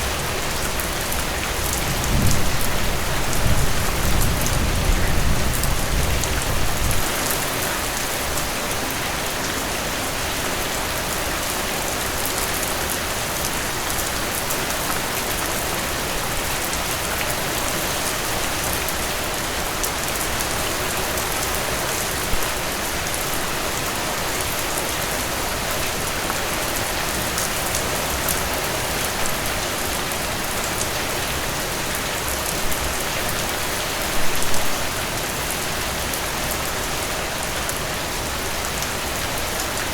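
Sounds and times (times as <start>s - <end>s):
low thunder rumble: 1.8s - 7.1s.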